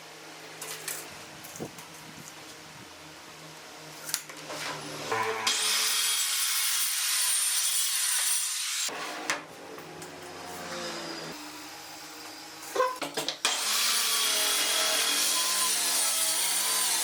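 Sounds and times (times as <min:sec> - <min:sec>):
power tool cutting wood: 0:04.7 - 0:09.0, 0:10.1 - 0:12.8, 0:13.4 - 0:17.0.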